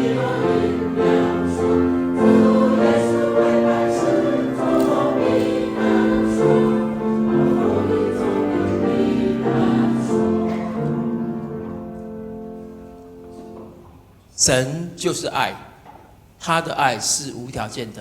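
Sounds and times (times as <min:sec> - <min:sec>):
church choir singing a hymn: 0:00.0 - 0:13.7.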